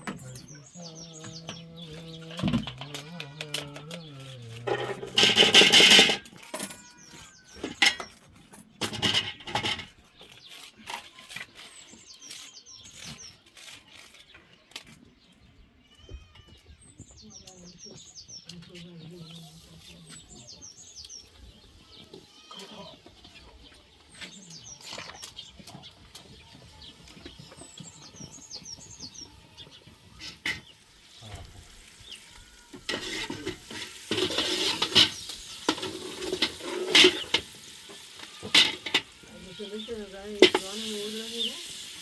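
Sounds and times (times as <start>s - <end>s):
small birds chirping: 0.0s - 42.0s
utensil clattering against pan: 4.7s - 6.8s, 8.8s - 10.0s, 32.8s - 39.2s, 40.4s - 41.0s
food sizzling in a pan: 30.1s - 42.0s.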